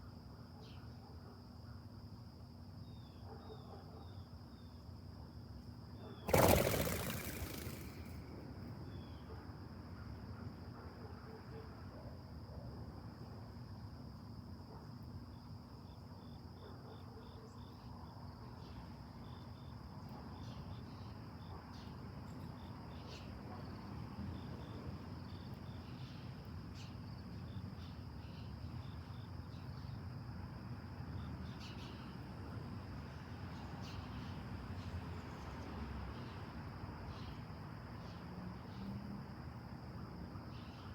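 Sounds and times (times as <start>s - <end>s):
insect chorus drone: 0.0s - 3.4s, 4.0s - 40.9s
short insect chirps: 6.3s - 8.2s.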